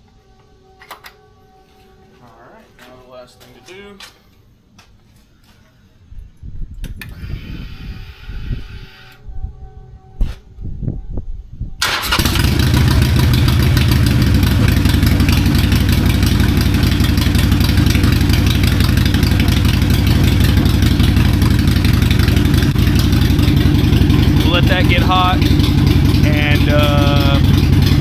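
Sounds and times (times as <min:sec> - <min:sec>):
motorcycle engine starting and idling: 0:11.8 - 0:28.0.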